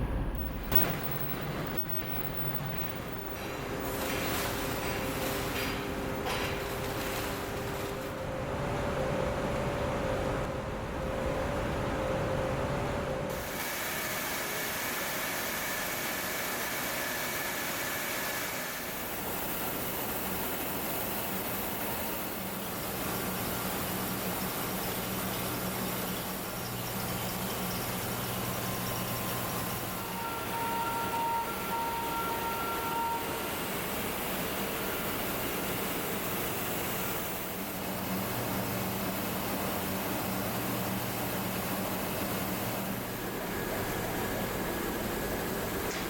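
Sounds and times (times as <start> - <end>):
factory machinery noise: 0.0 - 46.0
faint high-pitched machine tones: 25.3 - 33.7.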